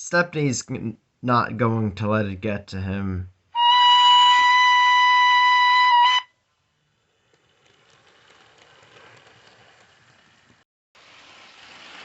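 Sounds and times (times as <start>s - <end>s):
loud high whistle: 3.6s - 6.4s
model locomotive running on track: 6.8s - 10.6s.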